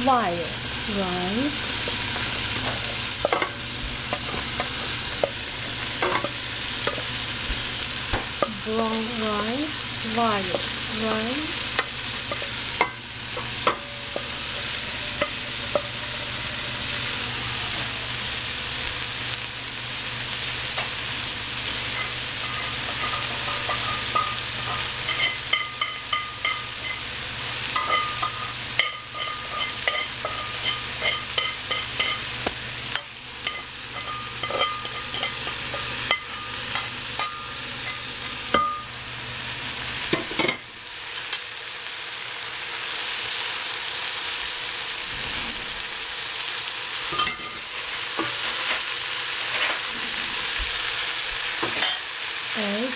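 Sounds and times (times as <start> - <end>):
rice sizzling in a pan: 0.0 - 52.9
utensil scraping a pan: 21.8 - 25.7.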